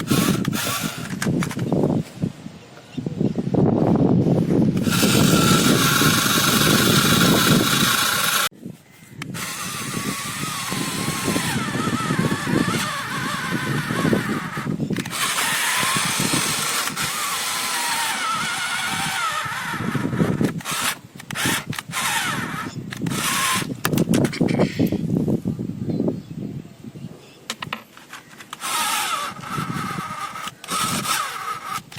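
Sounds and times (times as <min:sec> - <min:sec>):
small motor and gearbox whining: 0:00.0 - 0:01.8, 0:04.3 - 0:08.5, 0:09.2 - 0:25.0, 0:27.5 - 0:31.9.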